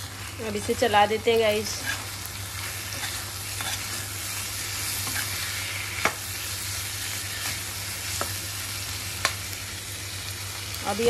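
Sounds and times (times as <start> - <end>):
potatoes sizzling in oil: 0.0 - 11.0
metal spatula stirring: 2.9 - 4.1.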